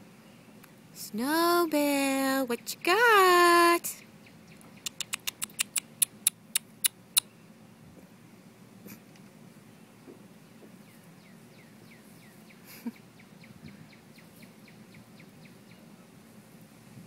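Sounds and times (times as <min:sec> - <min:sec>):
bird chirping: 0:02.5 - 0:07.5, 0:09.8 - 0:16.0
sharp click: 0:04.9 - 0:07.3.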